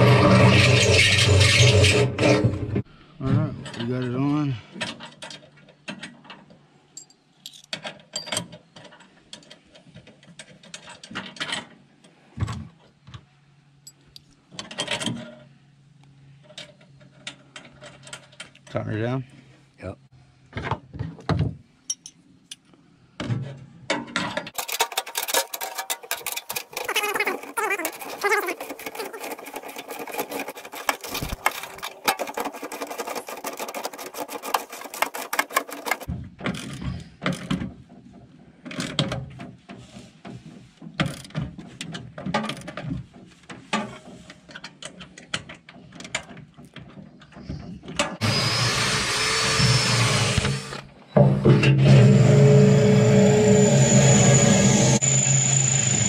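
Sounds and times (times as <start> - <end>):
tool clicking and rattling: 24.4 - 37.6
tool whirring: 24.6 - 36.1, 48.2 - 50.9.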